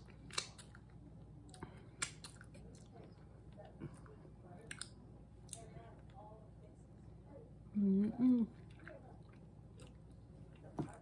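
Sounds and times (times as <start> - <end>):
fingers being licked: 0.0 - 2.9, 4.6 - 5.7
person chewing: 0.0 - 6.1, 8.6 - 11.0
wet mouth smacks and clicks: 0.2 - 0.8, 2.0 - 2.5, 4.7 - 5.6.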